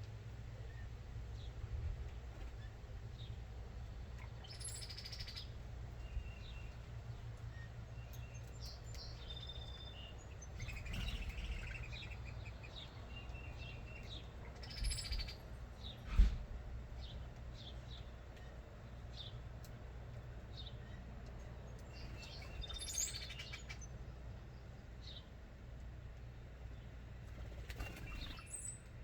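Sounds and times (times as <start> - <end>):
birds chirping and calling: 4.0 - 16.0, 20.5 - 24.0, 27.3 - 28.9.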